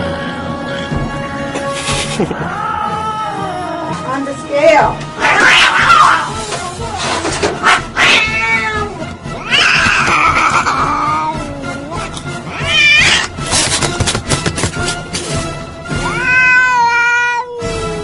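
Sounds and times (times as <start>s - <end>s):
cat meowing and yowling: 5.2s - 6.4s, 7.7s - 13.3s, 16.0s - 18.0s.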